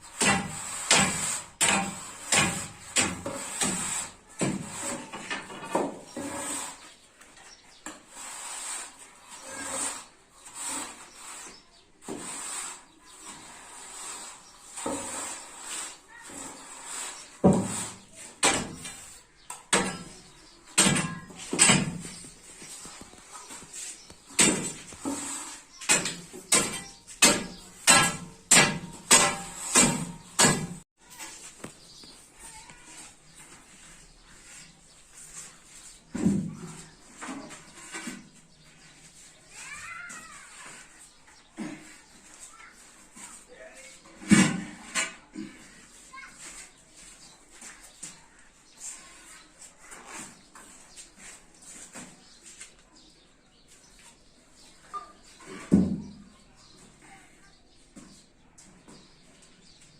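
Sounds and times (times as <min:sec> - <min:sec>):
rough scraping on hard surface: 0:00.0 - 0:52.8
sharp knocks: 0:00.2 - 0:04.8, 0:19.5 - 0:22.3, 0:24.3 - 0:25.2, 0:25.8 - 0:30.8.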